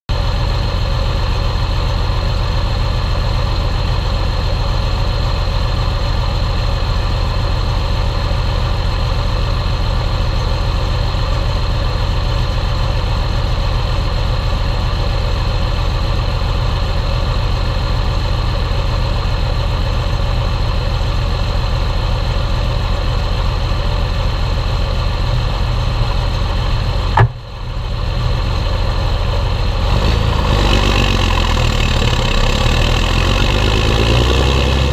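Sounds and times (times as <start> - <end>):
tractor diesel engine running: 0.1 - 34.9
sharp click: 27.2 - 27.4.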